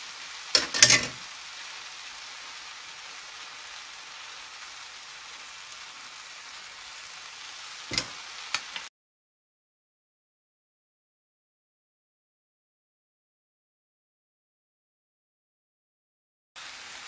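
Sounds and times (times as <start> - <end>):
vegetables sizzling in a saucepan: 0.0 - 8.9, 16.6 - 17.0.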